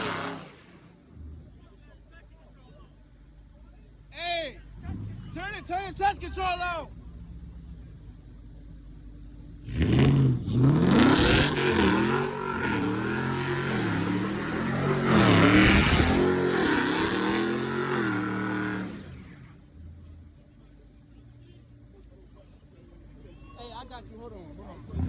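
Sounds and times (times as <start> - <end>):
car engine revving hard: 0.0 - 1.4, 9.6 - 19.5.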